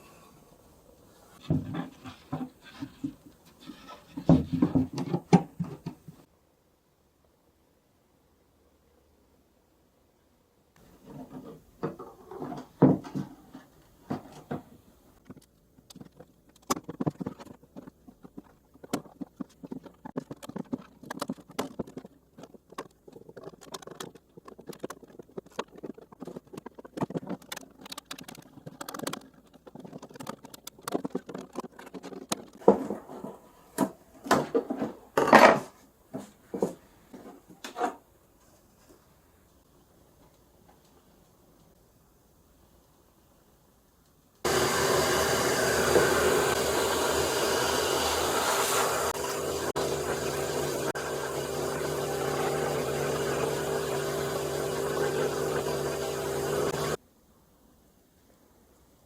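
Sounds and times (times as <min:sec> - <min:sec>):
objects tapping and scraping: 0:01.4 - 0:06.3, 0:10.8 - 0:39.0.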